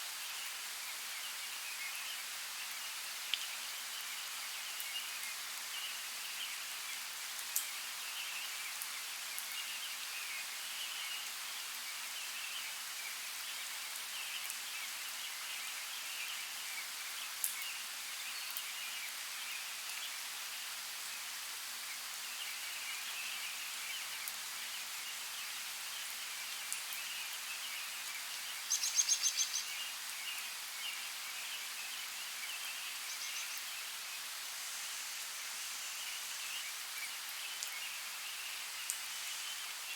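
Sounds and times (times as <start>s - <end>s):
rain hiss: 0.0s - 39.9s.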